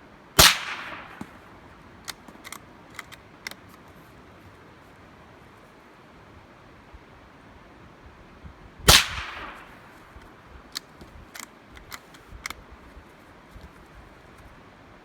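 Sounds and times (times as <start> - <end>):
gunshot with echo: 0.4 - 1.4, 8.9 - 9.8
light sharp clicks: 9.1 - 12.6.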